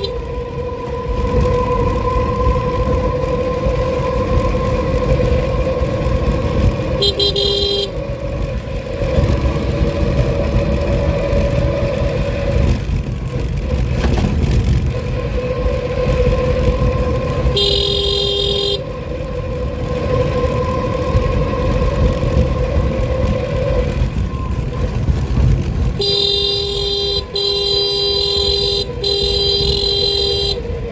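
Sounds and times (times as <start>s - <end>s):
vehicle horn blasts: 0.0s - 0.2s, 6.9s - 8.0s, 17.4s - 18.9s, 26.0s - 30.8s
vehicle motor whine and rumble: 0.0s - 30.9s.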